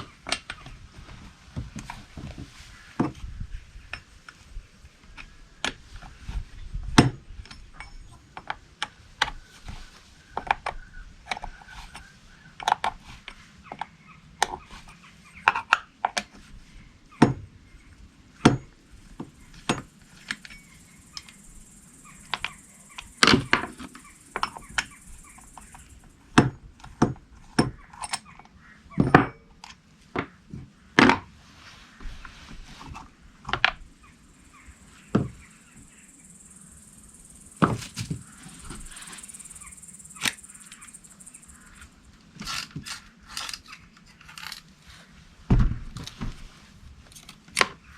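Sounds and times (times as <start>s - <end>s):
hand tools clicking and knocking: 22.2s - 30.4s, 41.8s - 44.7s.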